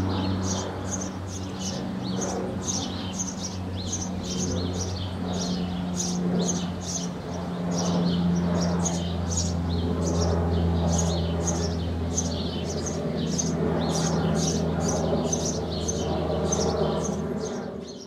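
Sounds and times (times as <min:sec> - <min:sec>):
sparrows chirping: 0:00.0 - 0:18.0
steady low hum: 0:00.0 - 0:18.0.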